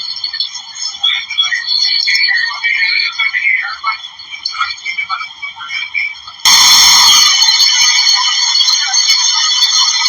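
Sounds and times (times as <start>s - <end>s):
high-pitched alarm-like tone: 6.4s - 10.0s.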